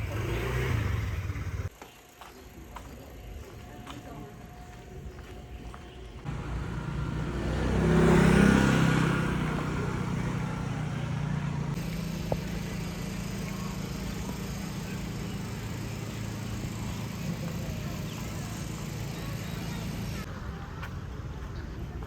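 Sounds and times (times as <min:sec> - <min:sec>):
vehicle passing: 0:00.0 - 0:01.7, 0:06.2 - 0:20.3
low engine hum: 0:04.0 - 0:22.0.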